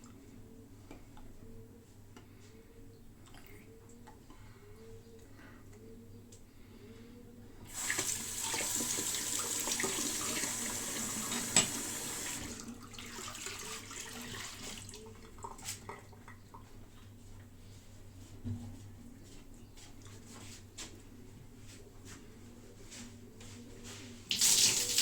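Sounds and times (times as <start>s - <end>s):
tap water running into sink: 7.7s - 15.6s, 24.3s - 25.0s.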